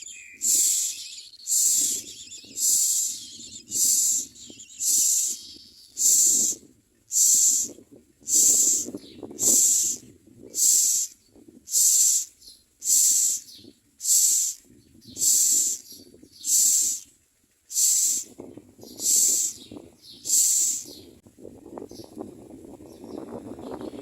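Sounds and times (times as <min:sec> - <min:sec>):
nestlings hissing begging calls: 0:00.0 - 0:07.7, 0:08.3 - 0:17.1, 0:17.7 - 0:21.0.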